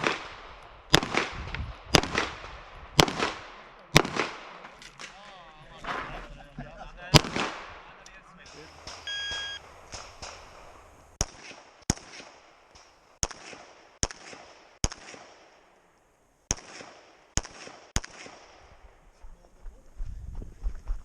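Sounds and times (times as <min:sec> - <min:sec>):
gunshots with echo: 0:00.0 - 0:04.7, 0:07.1 - 0:12.5
shot timer beep: 0:09.0 - 0:09.6.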